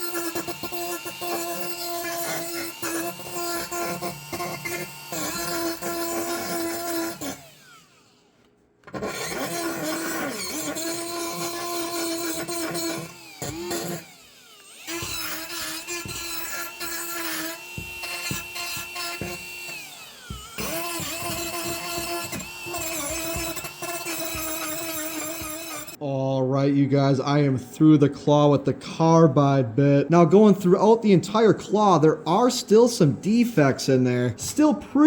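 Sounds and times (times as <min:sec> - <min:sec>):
rotary tool grinding metal: 0:00.0 - 0:08.2, 0:08.9 - 0:26.0.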